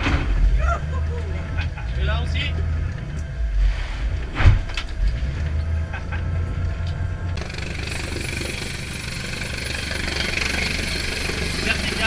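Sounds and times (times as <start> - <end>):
low engine hum: 0.0 - 12.0
helicopter rotor wash: 7.4 - 12.0.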